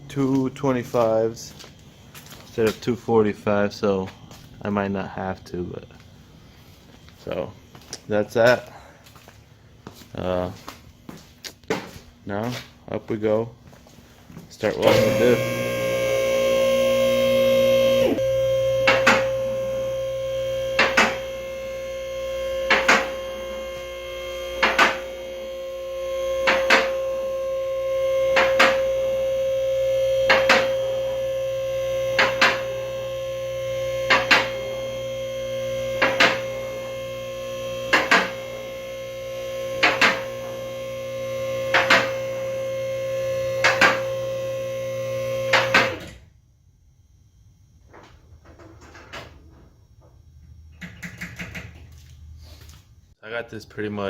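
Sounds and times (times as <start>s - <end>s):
hydraulic pump motor humming: 14.6s - 46.2s.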